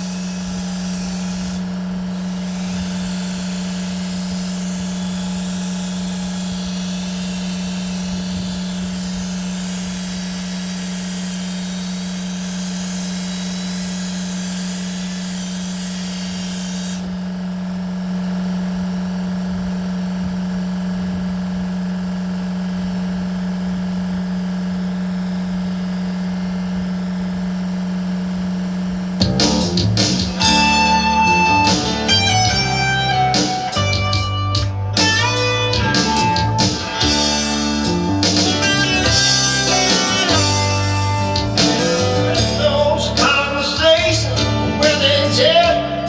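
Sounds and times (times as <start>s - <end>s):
power tool motor running: 0.0s - 46.0s
guitar music: 29.2s - 46.0s
high hiss: 29.2s - 46.0s.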